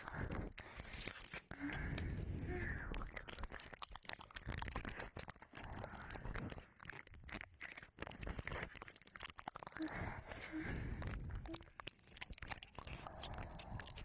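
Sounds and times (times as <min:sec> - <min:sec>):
wet ear licking and mouth sounds: 0:00.0 - 0:14.0.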